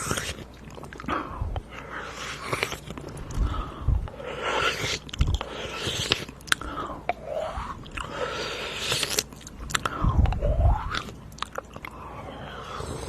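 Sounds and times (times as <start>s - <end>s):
wet mouth clicks and smacks: 4.9s - 7.2s, 8.8s - 12.0s.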